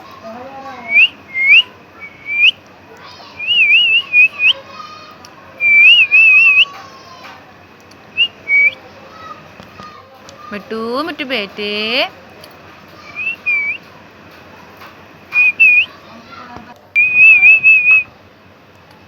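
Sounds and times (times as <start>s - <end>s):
short high whistles: 0.9s - 2.6s, 3.4s - 4.6s, 5.6s - 6.7s, 8.2s - 8.8s, 13.2s - 13.8s, 15.3s - 15.9s, 17.0s - 18.1s.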